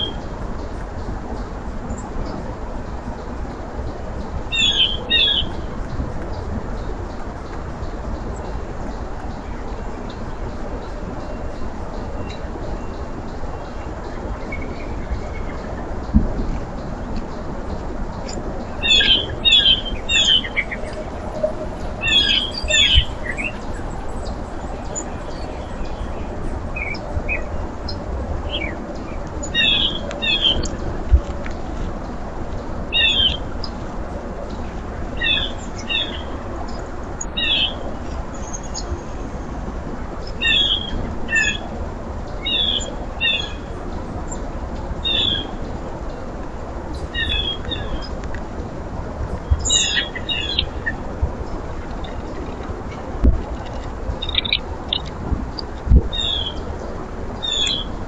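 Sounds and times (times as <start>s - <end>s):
small birds chirping: 4.6s - 30.8s, 54.2s - 56.7s.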